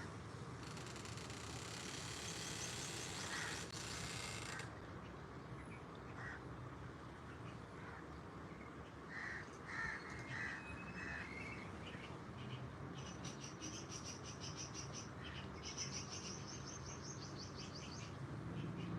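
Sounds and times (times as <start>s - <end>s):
crows cawing: 3.0s - 4.7s, 6.2s - 6.4s, 9.1s - 11.4s.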